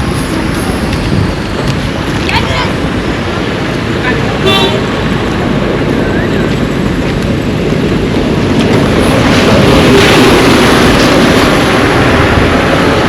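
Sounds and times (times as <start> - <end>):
traffic on a wet street: 0.0 - 13.0
vehicle passing: 1.8 - 13.0.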